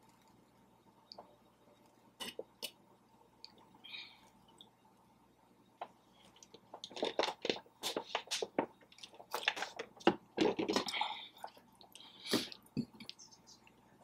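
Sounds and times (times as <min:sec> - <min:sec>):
person chewing wet food: 0:06.1 - 0:09.9.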